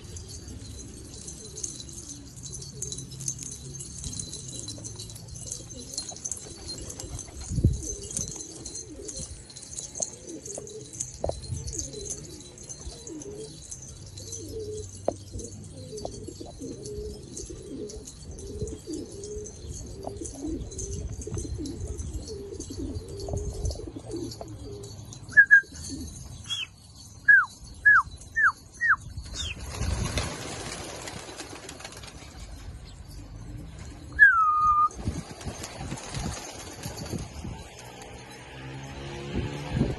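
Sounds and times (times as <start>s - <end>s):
pigeons cooing: 0.0s - 26.7s
sharp high-pitched chirps: 26.4s - 29.6s.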